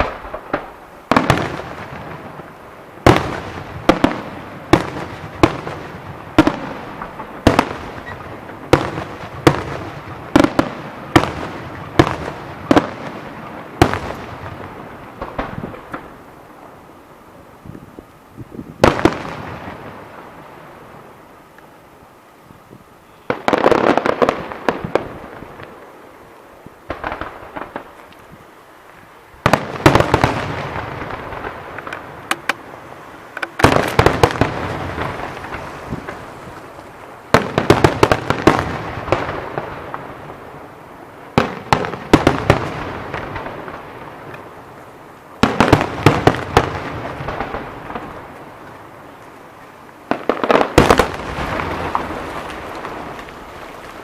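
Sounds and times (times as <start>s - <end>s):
fireworks bangs and rattle: 0.0s - 16.4s, 18.5s - 21.1s, 23.2s - 26.0s, 26.9s - 28.1s, 29.4s - 44.8s, 45.4s - 49.4s, 50.0s - 54.0s.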